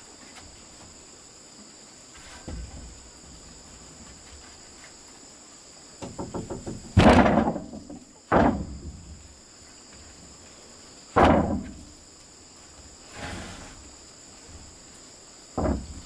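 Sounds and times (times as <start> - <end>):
insects chirring: 0.0 - 16.0
heavy thuds of wood struck: 2.3 - 3.6, 6.0 - 9.2, 11.1 - 12.0, 15.5 - 16.0.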